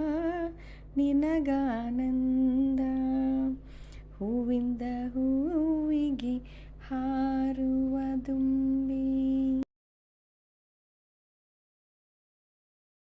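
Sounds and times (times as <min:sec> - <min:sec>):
woman singing wordless melody: 0:00.0 - 0:09.7.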